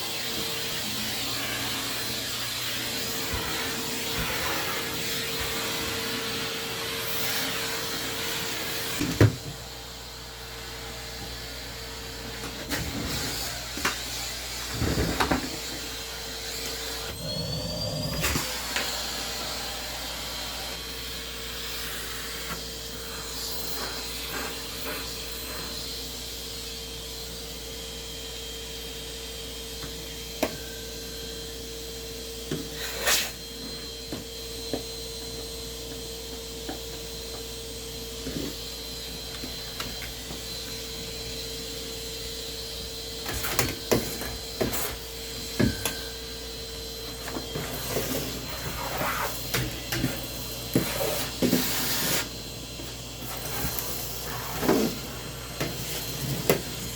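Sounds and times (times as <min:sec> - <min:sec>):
vacuum cleaner whine: 0:00.0 - 0:56.9
vacuum cleaner knocks and bumps: 0:09.0 - 0:09.6.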